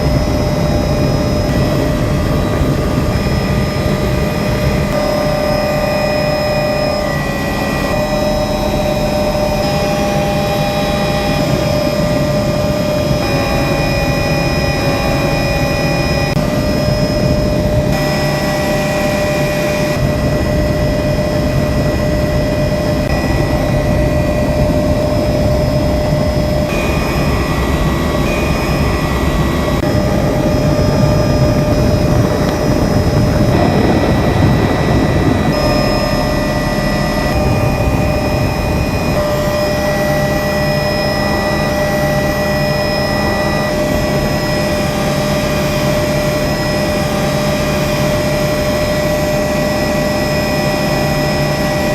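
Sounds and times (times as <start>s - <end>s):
helicopter engine and rotor: 0.0s - 51.9s
steady whining tones: 0.0s - 51.9s.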